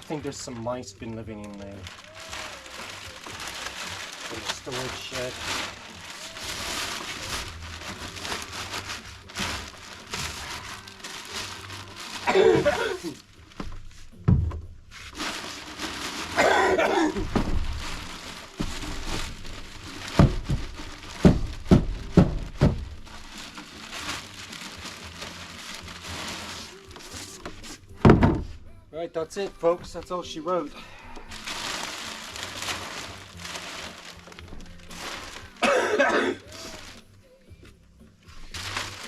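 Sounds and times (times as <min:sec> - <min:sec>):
rustling plastic bag handling: 0:00.0 - 0:37.1, 0:38.3 - 0:39.0
dull thumps of container: 0:27.5 - 0:28.7.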